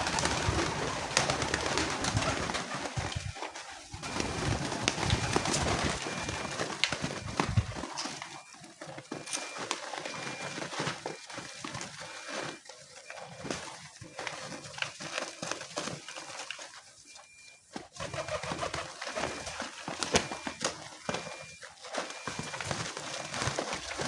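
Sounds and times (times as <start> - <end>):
pigeons cooing: 0.0 - 8.3, 17.9 - 21.2
birds scuffling: 0.0 - 24.0.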